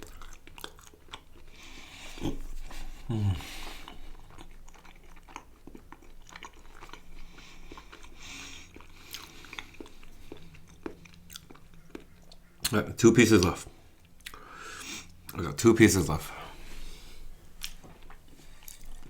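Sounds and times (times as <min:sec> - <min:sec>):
chewing food: 0:00.0 - 0:15.5, 0:16.8 - 0:19.0
wet mouth clicks: 0:17.6 - 0:19.0.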